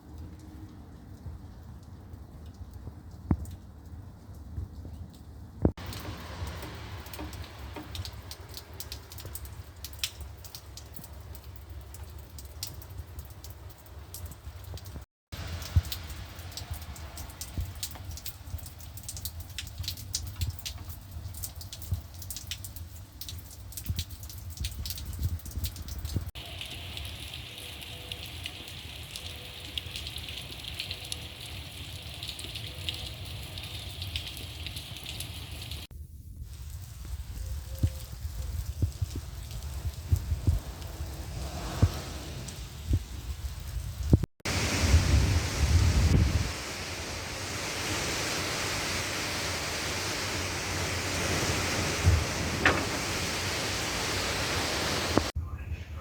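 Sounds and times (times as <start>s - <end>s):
rain drops tapping: 0.0s - 55.4s
rain hiss: 5.8s - 55.4s
low rumble: 38.6s - 47.8s.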